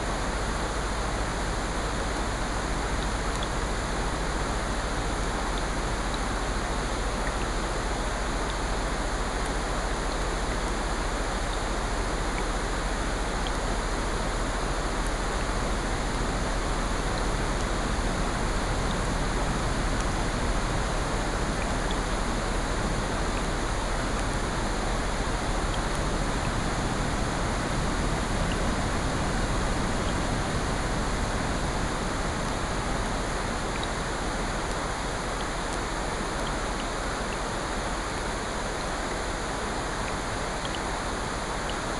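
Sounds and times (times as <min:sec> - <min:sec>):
rain: 0:00.0 - 0:41.9
ocean surf: 0:15.2 - 0:41.8.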